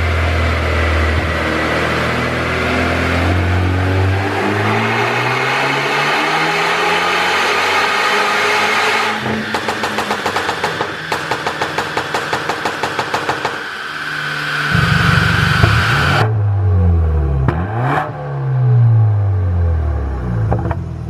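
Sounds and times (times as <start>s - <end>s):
low rumble and whine: 0.0s - 4.2s, 9.0s - 21.0s
car engine at high revs: 0.0s - 21.0s
exhaust pops and crackles: 9.5s - 13.7s.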